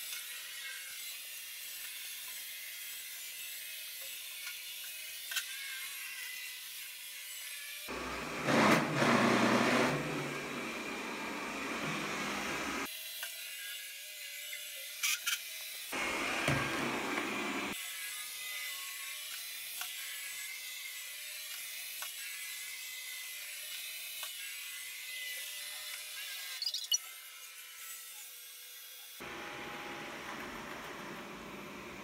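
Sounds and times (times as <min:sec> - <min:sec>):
robot vacuum whine: 0:07.9 - 0:12.9, 0:16.0 - 0:17.8.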